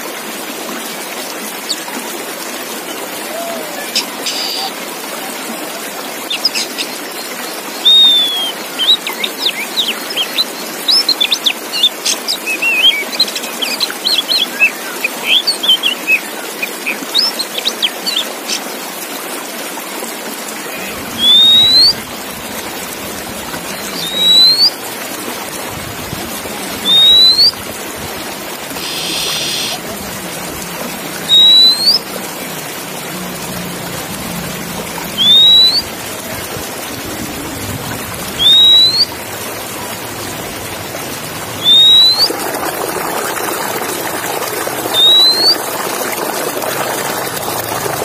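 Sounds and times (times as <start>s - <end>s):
bird singing: 3.4s - 4.8s, 7.7s - 10.6s, 20.7s - 22.0s, 23.7s - 24.8s, 26.8s - 27.5s, 28.8s - 29.8s, 31.3s - 32.1s, 35.1s - 35.9s, 38.4s - 39.1s, 41.6s - 42.4s, 44.9s - 45.6s
loud rising bird whistles: 7.8s - 8.9s, 20.8s - 22.0s, 23.7s - 24.7s, 26.8s - 27.6s, 28.8s - 29.8s, 31.3s - 32.0s, 35.2s - 35.9s, 38.4s - 39.1s, 41.6s - 42.5s, 44.9s - 45.6s.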